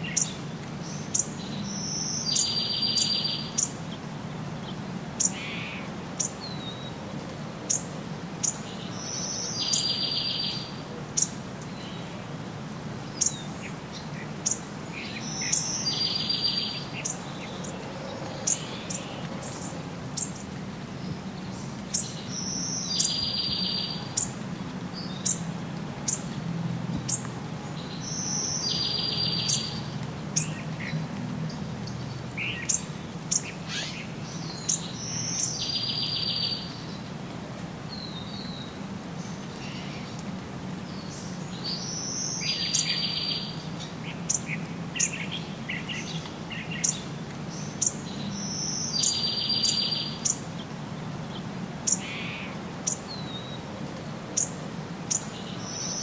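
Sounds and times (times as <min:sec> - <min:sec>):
birds chirping: 0:00.0 - 0:07.0, 0:07.7 - 0:12.2, 0:13.0 - 0:37.1, 0:40.9 - 0:53.6, 0:54.4 - 0:56.0
bird song with buzzy trill: 0:28.0 - 0:29.8, 0:47.8 - 0:50.4.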